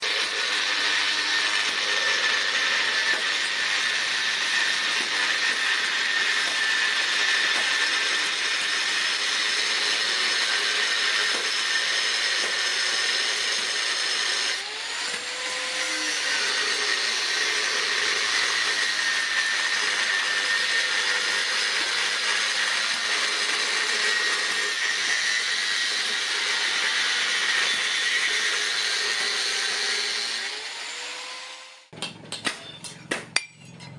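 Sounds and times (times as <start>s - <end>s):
power tool whirring: 0.0s - 32.0s.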